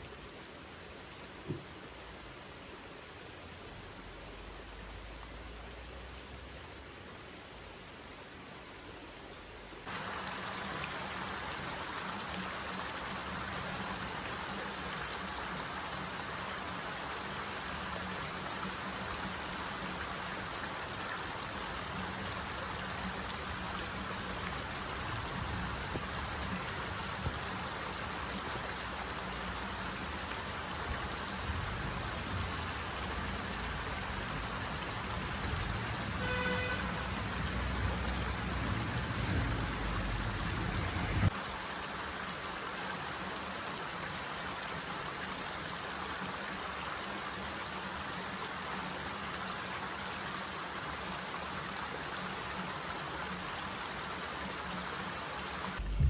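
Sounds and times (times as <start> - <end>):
running water rushing: 9.8 - 56.0
brief pitched sound: 55.8 - 56.0.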